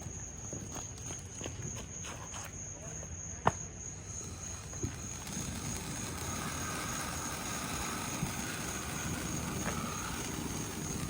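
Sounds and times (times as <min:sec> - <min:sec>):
firework fountain crack: 0:04.1 - 0:11.0
firework fountain rushing spray: 0:04.2 - 0:11.0.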